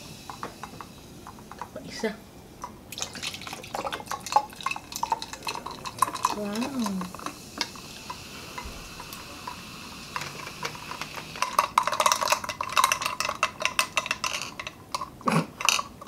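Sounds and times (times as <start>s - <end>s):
soda fizzing and crackling: 0.0s - 16.0s
ice clinking against glass: 9.5s - 16.0s.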